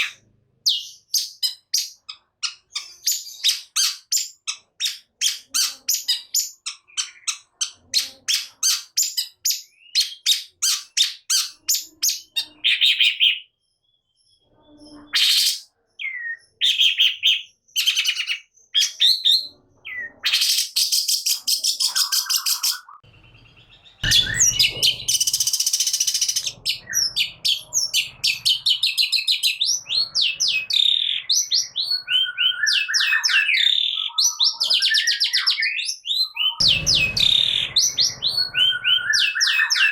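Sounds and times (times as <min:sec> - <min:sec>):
bird singing sharp notes: 0:21.2 - 0:39.9
brief rushing noise: 0:36.6 - 0:39.1.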